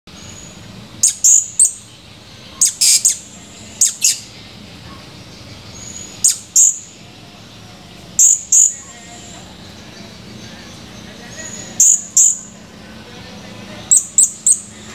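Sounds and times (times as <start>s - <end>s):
parrot chirping: 0.2s - 1.9s, 2.6s - 4.3s, 5.8s - 6.9s, 8.2s - 8.8s, 11.4s - 12.5s, 13.9s - 14.7s.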